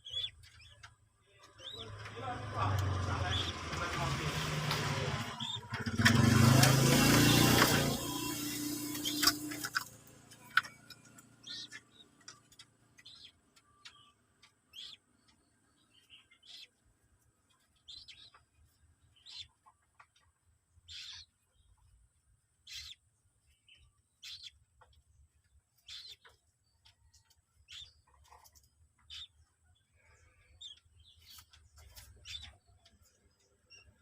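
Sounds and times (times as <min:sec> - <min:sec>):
moorhen chicks peeping: 0:00.0 - 0:34.0.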